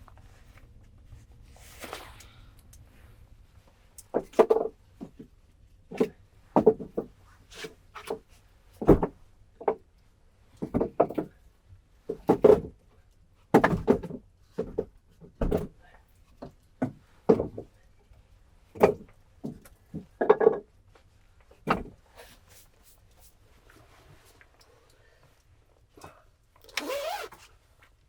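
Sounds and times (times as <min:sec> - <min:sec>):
wooden knocks and clunks: 0:05.9 - 0:07.2, 0:08.8 - 0:09.8, 0:10.6 - 0:11.4, 0:13.5 - 0:15.8, 0:16.4 - 0:17.7, 0:18.8 - 0:20.7, 0:21.6 - 0:22.0.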